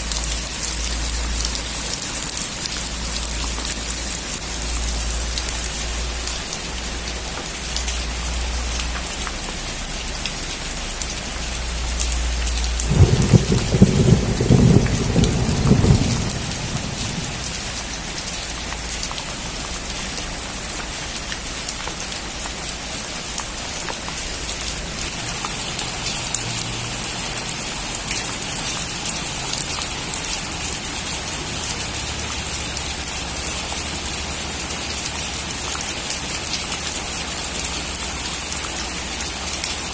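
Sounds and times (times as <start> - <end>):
heavy rain on metal roof: 0.0 - 39.9
thunder clap rumbling: 12.8 - 18.2.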